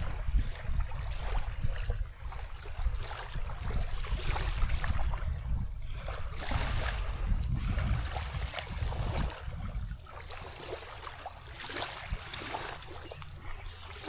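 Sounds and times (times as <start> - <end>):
small waves washing on shore: 0.0 - 14.0
wind buffeting microphone: 0.0 - 14.0.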